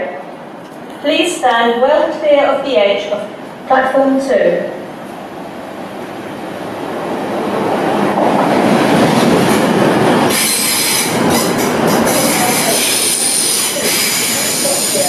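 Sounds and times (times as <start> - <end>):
train rumble: 0.0 - 15.0
loud rushing hiss of carriages: 4.7 - 15.0
high wheel squeal: 10.3 - 15.0.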